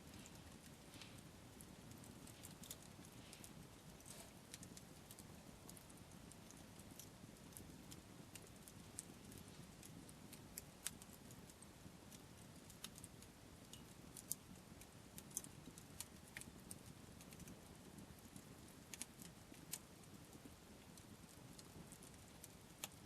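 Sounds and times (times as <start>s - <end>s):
faint low rumble: 0.0s - 13.4s
campfire crackling: 0.0s - 23.0s.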